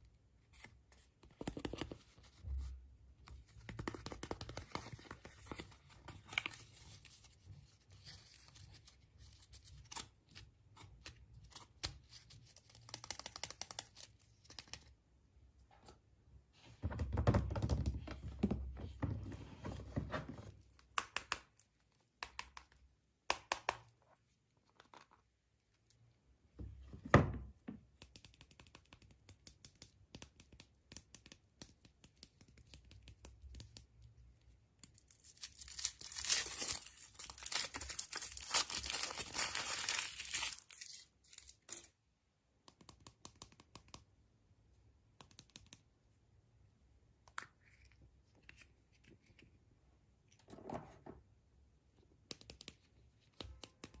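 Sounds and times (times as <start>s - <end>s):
packaging wrapper crinkling and tearing: 35.1s - 41.8s.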